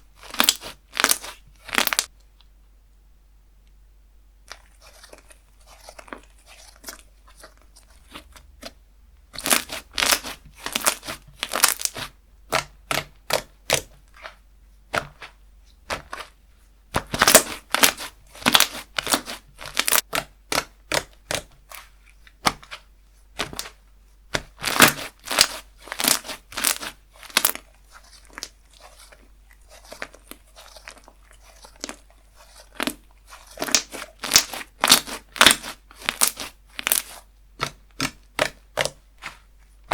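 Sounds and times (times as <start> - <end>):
slime popping and crackling: 0.2 - 2.1, 9.4 - 13.9, 17.0 - 21.5, 24.4 - 39.4.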